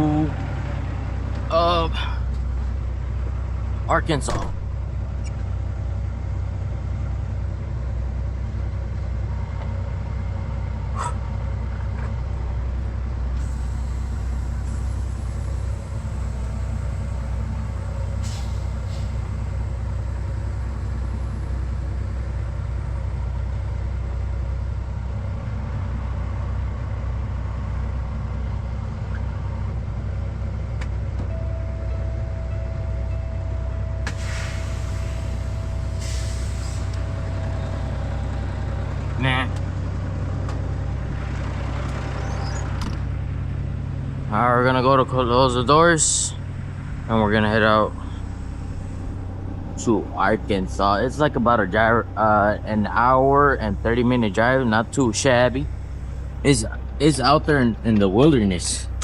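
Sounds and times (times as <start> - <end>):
diesel truck engine idling: 0.0 - 59.0
steady higher tone: 31.3 - 39.0.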